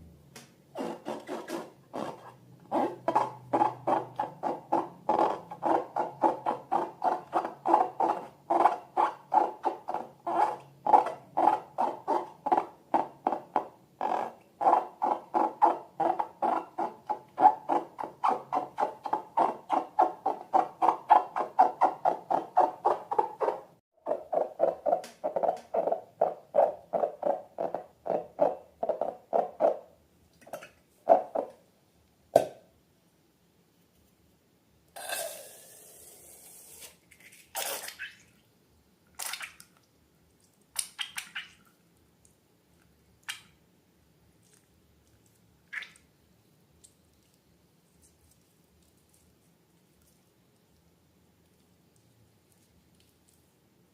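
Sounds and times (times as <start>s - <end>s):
rubbery squeaks and squelches: 0.8s - 29.8s.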